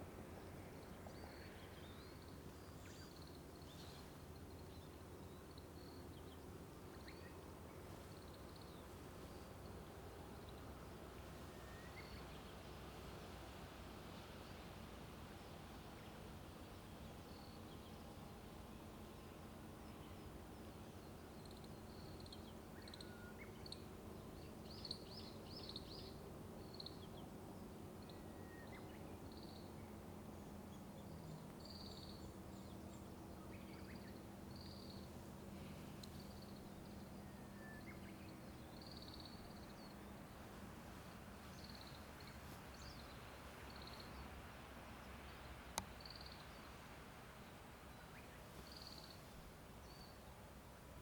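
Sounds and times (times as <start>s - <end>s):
low rumble of road traffic: 0.0s - 51.0s
small birds chirping: 41.4s - 44.4s, 45.0s - 46.8s, 47.4s - 50.3s.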